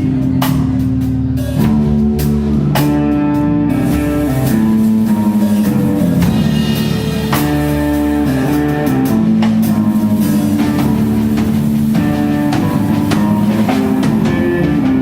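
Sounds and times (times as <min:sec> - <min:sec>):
drum kit: 0:00.0 - 0:15.0
guitar holding long notes: 0:01.6 - 0:15.0.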